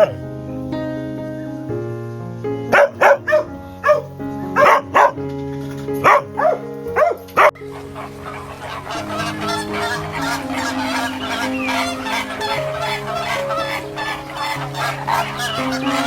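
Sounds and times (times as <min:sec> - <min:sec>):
background music: 0:00.0 - 0:16.0
dog barking: 0:02.7 - 0:05.2, 0:06.0 - 0:16.0
chickens clucking: 0:07.5 - 0:16.0.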